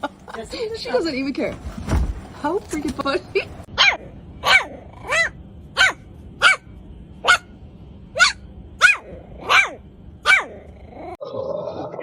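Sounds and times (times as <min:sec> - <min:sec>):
dog barking: 0:03.8 - 0:07.5, 0:08.2 - 0:10.5.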